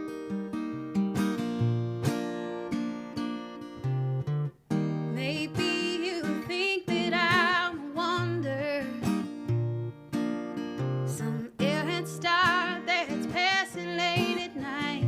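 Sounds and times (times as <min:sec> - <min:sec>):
acoustic guitar: 0:00.0 - 0:15.0
person singing wordless melody: 0:05.1 - 0:09.0, 0:11.1 - 0:15.0.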